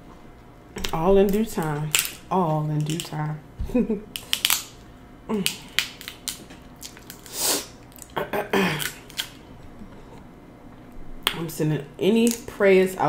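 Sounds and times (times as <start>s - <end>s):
person chewing with wet smacking: 5.3s - 8.2s.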